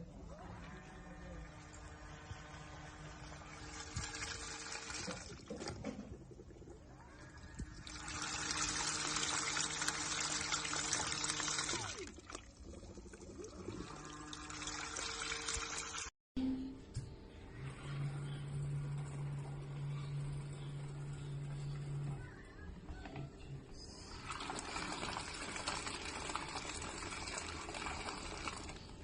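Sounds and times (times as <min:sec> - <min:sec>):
water running: 0:00.5 - 0:16.1, 0:24.0 - 0:29.0
steady low hum: 0:16.4 - 0:24.5.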